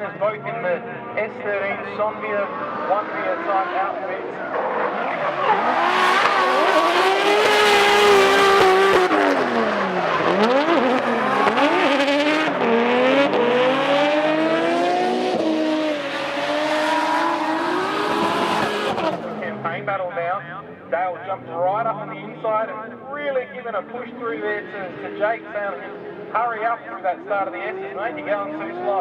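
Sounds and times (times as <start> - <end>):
car engines revving high: 0.0 - 29.0.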